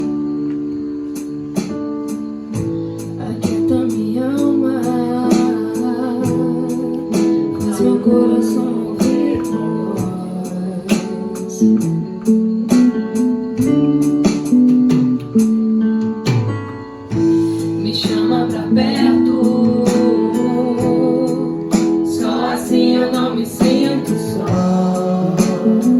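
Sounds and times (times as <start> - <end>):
guitar and keyboard chords: 0.0 - 25.9
drum and cymbal strokes: 16.3 - 25.9.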